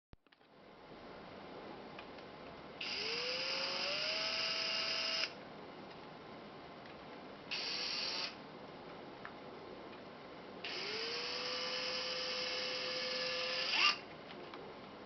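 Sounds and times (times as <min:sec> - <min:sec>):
cordless drill motor running: 0:02.8 - 0:05.4, 0:07.5 - 0:08.4, 0:10.7 - 0:14.0.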